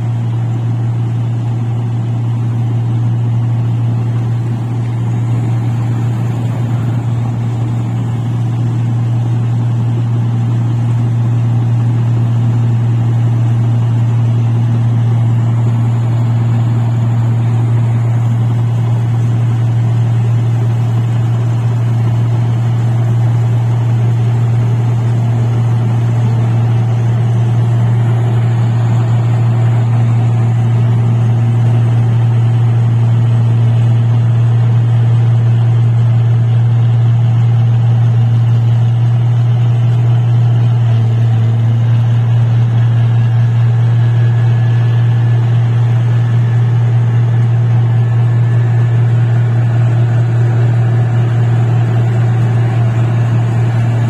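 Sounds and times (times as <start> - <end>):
harvesting machine engine drone: 0.0 - 54.0
faint high whine: 2.1 - 9.2.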